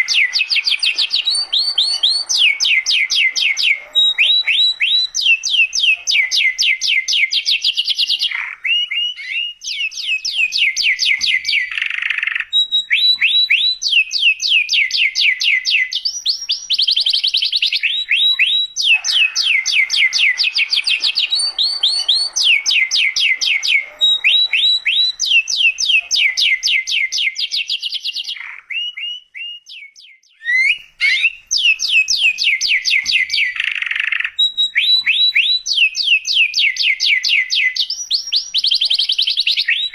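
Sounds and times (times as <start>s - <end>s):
canary trilling song: 0.0s - 39.9s.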